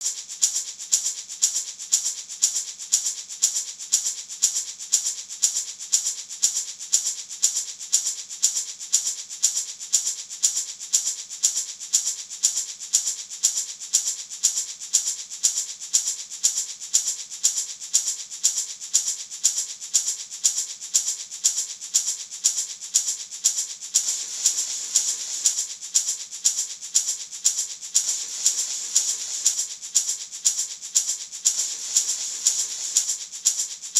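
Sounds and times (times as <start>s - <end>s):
gourd maraca rattling: 13.6s - 33.9s.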